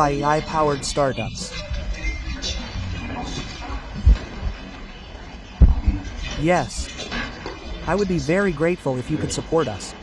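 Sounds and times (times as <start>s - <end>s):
faint murmuring: 0.0s - 7.0s
low thump: 5.6s - 6.0s.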